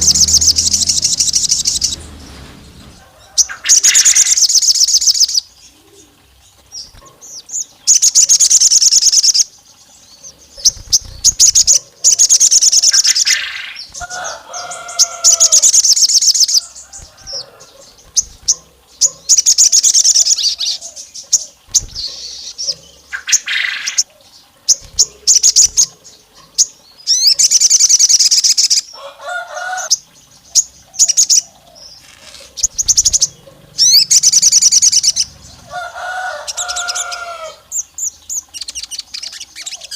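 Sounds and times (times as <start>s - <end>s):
bird trilling: 0.0s - 5.4s, 10.6s - 20.8s, 31.0s - 39.9s
lower bird notes: 0.0s - 6.2s, 31.9s - 39.4s.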